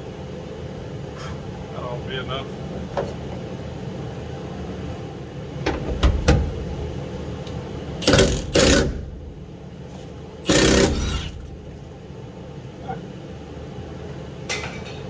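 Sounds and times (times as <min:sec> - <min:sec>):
impact wrench hammering: 0:08.0 - 0:09.5, 0:10.5 - 0:11.8.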